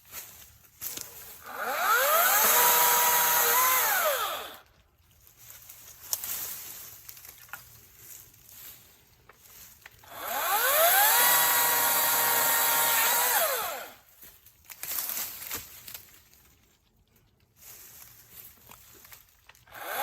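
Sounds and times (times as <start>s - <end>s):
electric chainsaw motor whining: 1.4s - 4.6s, 10.0s - 14.0s, 19.7s - 20.0s.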